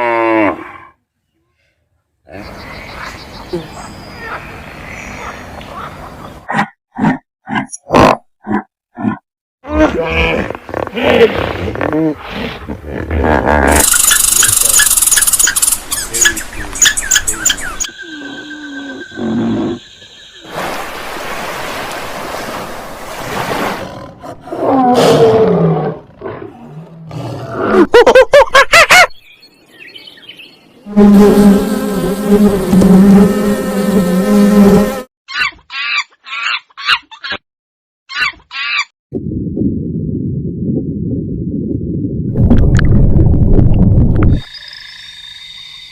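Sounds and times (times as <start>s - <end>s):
animal calls and cries: 13.7s - 20.1s, 35.3s - 37.4s, 38.1s - 38.9s
rapid repeated chirps: 13.8s - 18.0s.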